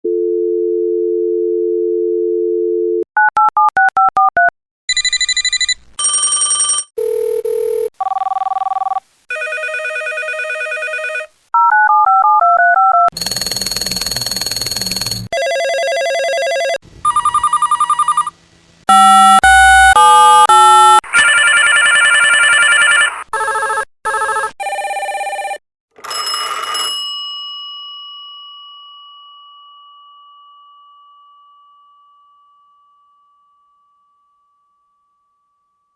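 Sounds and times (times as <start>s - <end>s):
phone ring tones: 4.9s - 18.3s, 18.9s - 27.0s
telephone dial tone: 5.0s - 18.3s, 21.1s - 27.0s
electronic phone ringer trill: 13.1s - 18.3s, 18.9s - 27.0s
struck tone ringing: 13.2s - 23.1s.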